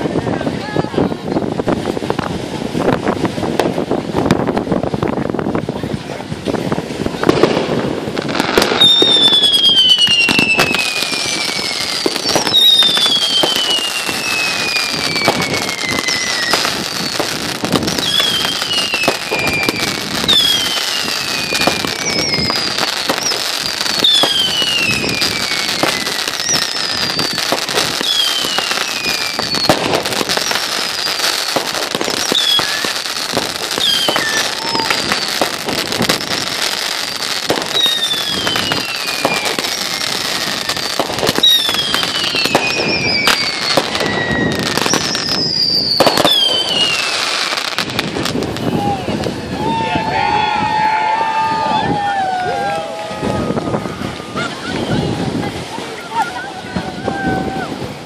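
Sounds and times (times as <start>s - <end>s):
firework pops and crackles: 1.6s - 49.5s
falling firework whistles: 8.2s - 52.8s.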